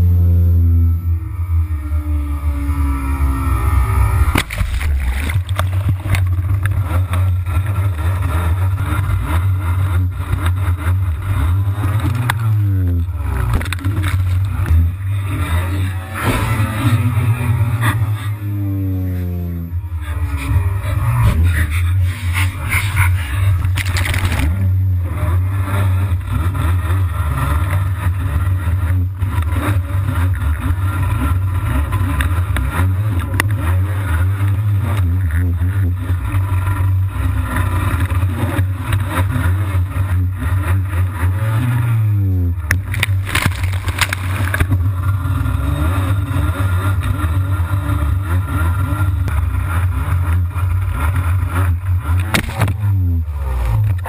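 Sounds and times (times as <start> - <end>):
jet ski engine running: 0.0 - 54.0.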